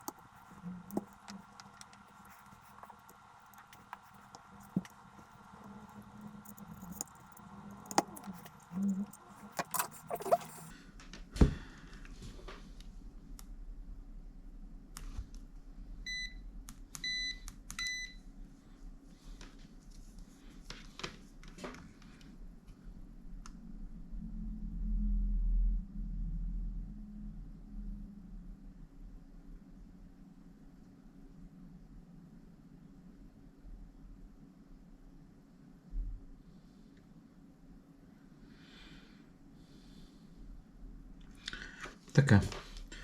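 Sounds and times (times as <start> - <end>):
tools clicking and knocking: 0.0 - 10.7
low steady hum: 0.0 - 43.0.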